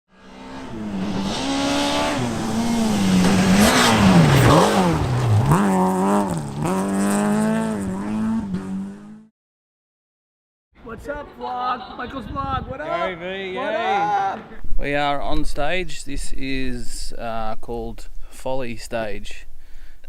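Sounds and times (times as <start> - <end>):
rally car engine revving: 0.1 - 9.3.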